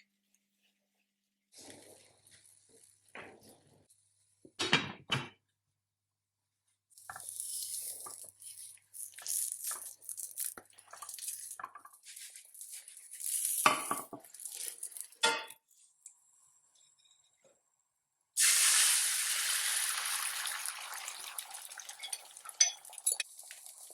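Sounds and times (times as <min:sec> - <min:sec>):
rustling and scraping: 0:01.5 - 0:03.9, 0:07.0 - 0:15.9
dishes clattering: 0:15.2 - 0:15.6, 0:21.9 - 0:23.3.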